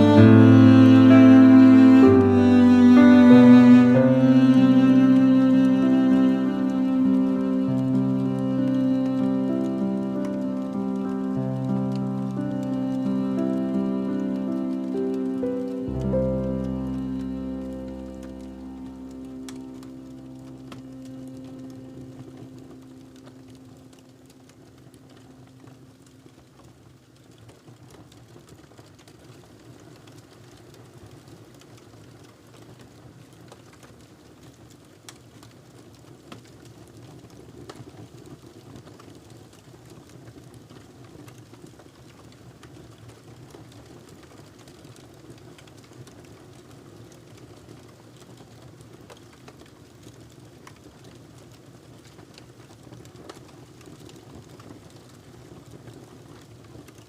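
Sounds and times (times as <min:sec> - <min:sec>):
held music note: 0:00.0 - 0:24.8
wood fire crackling: 0:00.0 - 0:57.0.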